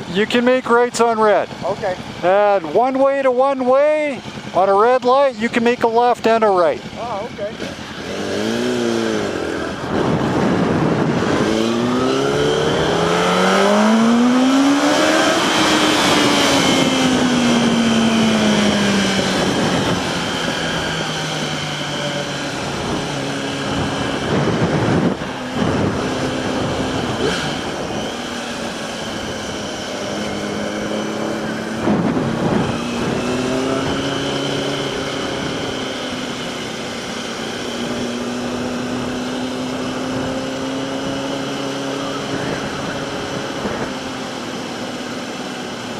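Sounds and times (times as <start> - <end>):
motorcycle engine accelerating: 0.0 - 45.9
wind rushing: 8.1 - 44.2.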